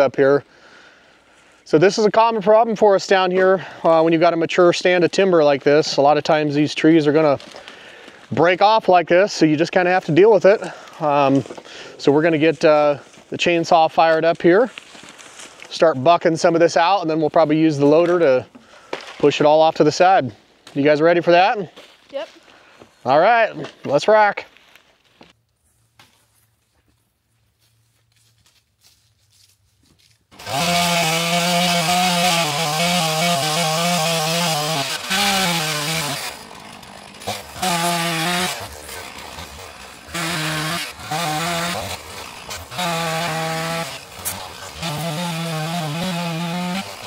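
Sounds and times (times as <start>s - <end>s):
chainsaw revving and idling: 30.3s - 47.0s.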